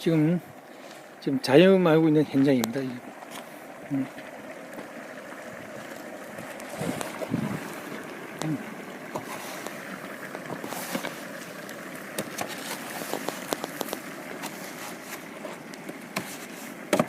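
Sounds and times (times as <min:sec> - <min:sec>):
firewood crackling and popping: 0:02.3 - 0:17.0.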